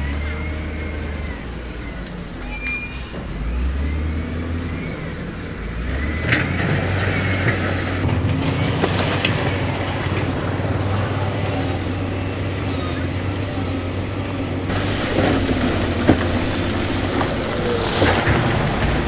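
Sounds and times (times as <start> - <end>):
high metallic squeals: 0.0 - 18.8
diesel machinery humming: 0.0 - 19.0.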